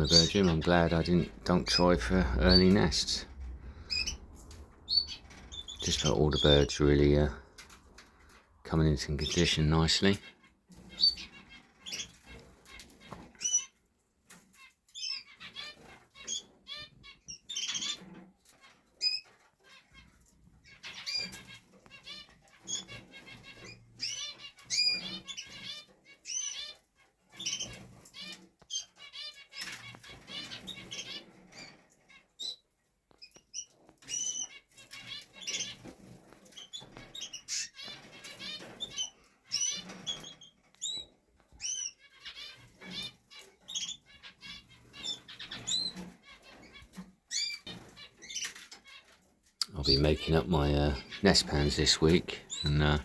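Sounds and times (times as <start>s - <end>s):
wings fluttering: 0.0s - 13.5s
canaries chirping and warbling: 0.0s - 53.0s.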